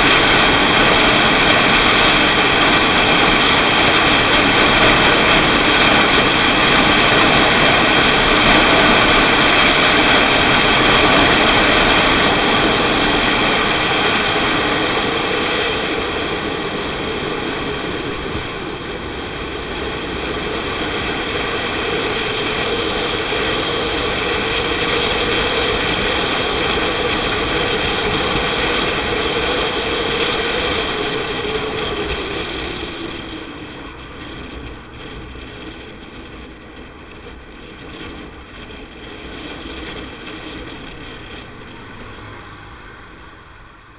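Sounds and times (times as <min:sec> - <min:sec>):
motorcycle engine running: 0:00.0 - 0:43.9
wind rushing: 0:38.5 - 0:43.9.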